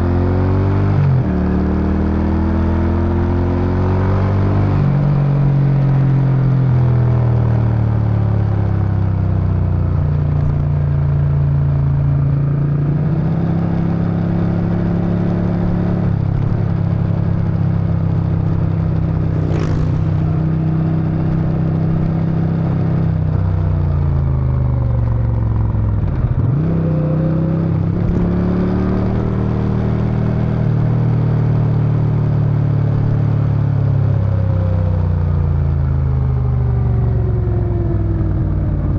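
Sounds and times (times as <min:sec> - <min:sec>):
motorcycle engine and exhaust: 0:00.0 - 0:38.9
brief sharp sound: 0:19.3 - 0:20.7.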